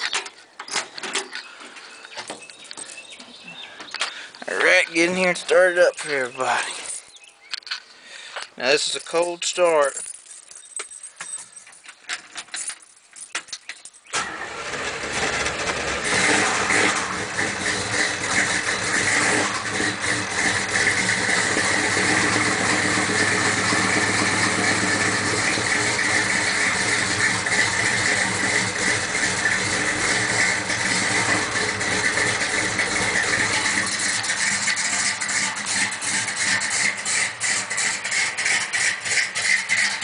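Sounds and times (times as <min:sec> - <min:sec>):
engine starting and revving: 0:14.1 - 0:40.0.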